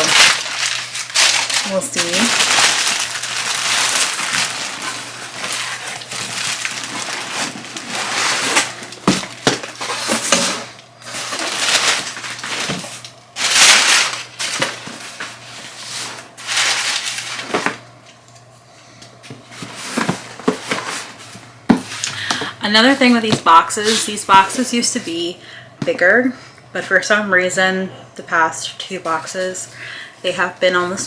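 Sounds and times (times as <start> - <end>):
cardboard and paper rustling: 0.0 - 17.8, 19.2 - 25.3.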